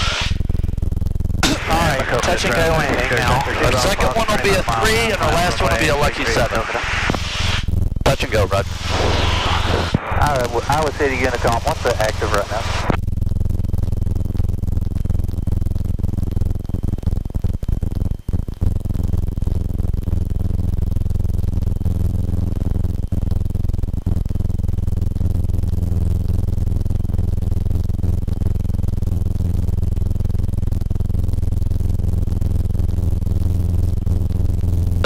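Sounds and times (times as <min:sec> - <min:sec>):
aircraft engine drone through intercom: 0:01.4 - 0:06.9, 0:08.1 - 0:12.9.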